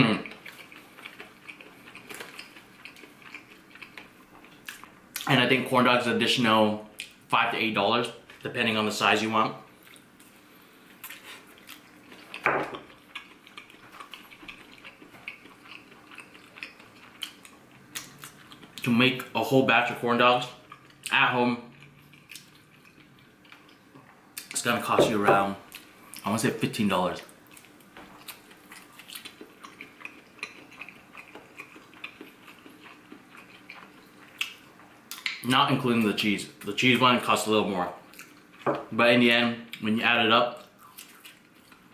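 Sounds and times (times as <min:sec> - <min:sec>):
person chewing crispy food: 0:00.0 - 0:05.3, 0:09.8 - 0:18.9, 0:20.5 - 0:21.1, 0:21.7 - 0:24.5, 0:27.3 - 0:35.4, 0:40.6 - 0:41.9.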